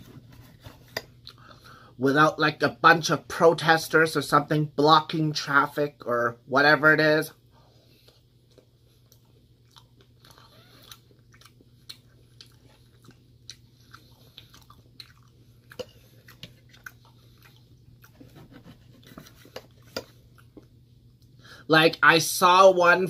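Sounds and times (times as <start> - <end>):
chewing with wet mouth clicks: 8.0 - 18.2, 19.4 - 21.4.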